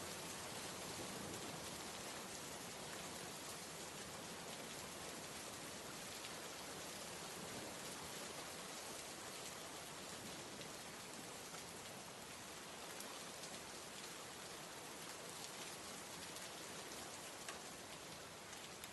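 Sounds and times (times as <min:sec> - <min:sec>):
steady rain hiss: 0:00.0 - 0:18.9
faint raindrop ticks: 0:07.4 - 0:18.9.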